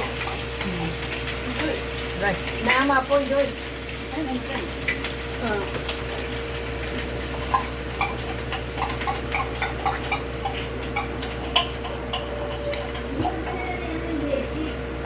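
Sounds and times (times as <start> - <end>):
utensils tapping plates: 7.0 - 13.8.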